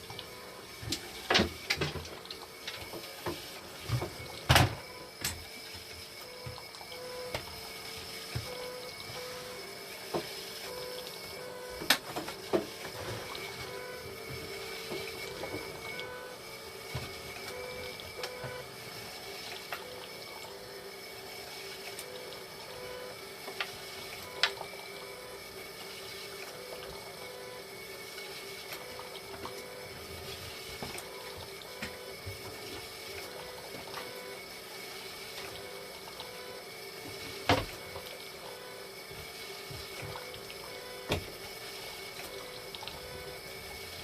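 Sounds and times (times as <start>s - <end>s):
pump hum: 0.0s - 44.0s
water flowing through machine: 0.0s - 44.0s
regular pulsing tone: 8.4s - 9.7s.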